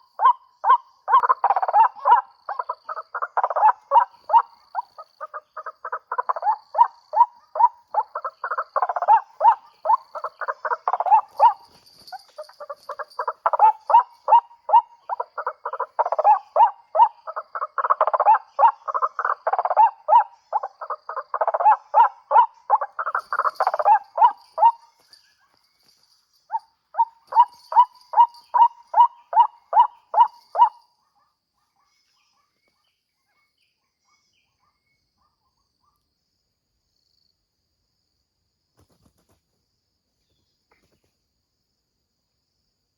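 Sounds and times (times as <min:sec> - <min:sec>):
waterhen calling: 0:00.0 - 0:24.8, 0:27.0 - 0:30.8.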